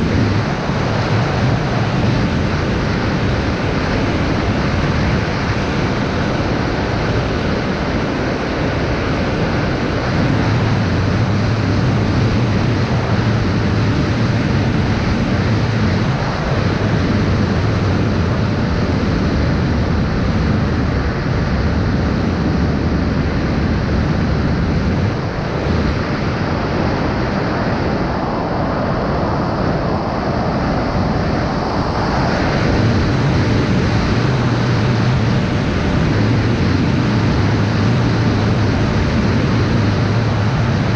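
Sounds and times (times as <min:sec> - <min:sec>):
drone propeller and wind noise: 0:00.0 - 0:40.9.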